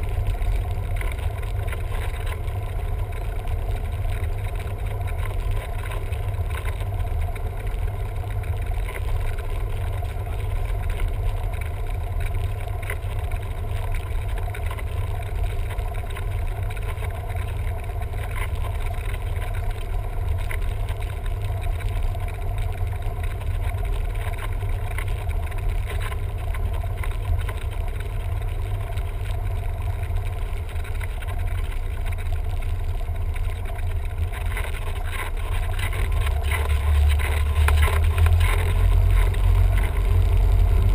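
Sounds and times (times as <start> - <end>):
airplane engine droning: 31.9 - 40.9.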